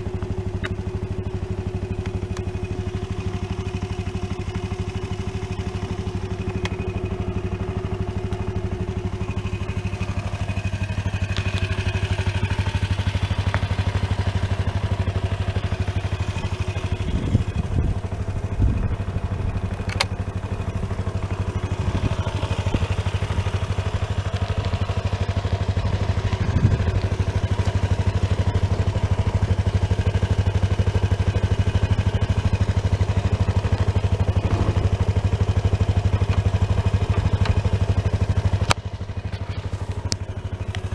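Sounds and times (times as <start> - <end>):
scooter engine idling: 0.0 - 40.9
sharp click: 19.8 - 20.2
low thumps: 34.4 - 35.3.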